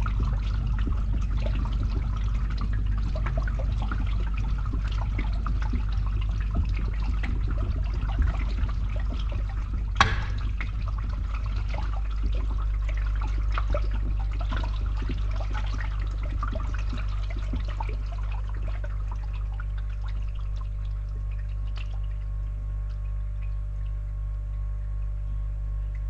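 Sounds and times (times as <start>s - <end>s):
pump humming: 0.0s - 26.0s
water gurgling in pipe: 0.0s - 26.0s
sharp knock: 10.0s - 10.4s.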